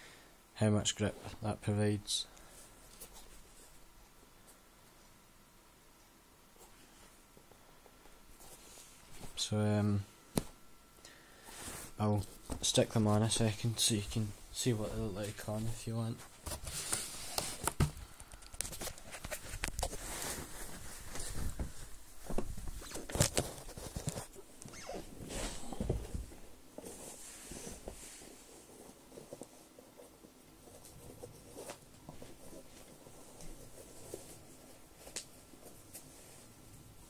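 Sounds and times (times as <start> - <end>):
boots rustling and knocking: 18.7 - 29.5.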